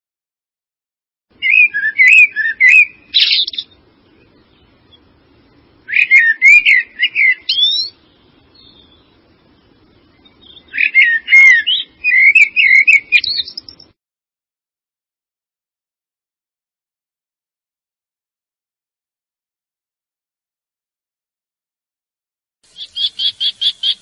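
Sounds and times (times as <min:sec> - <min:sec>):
songbird singing: 0:01.3 - 0:14.0, 0:22.6 - 0:24.0.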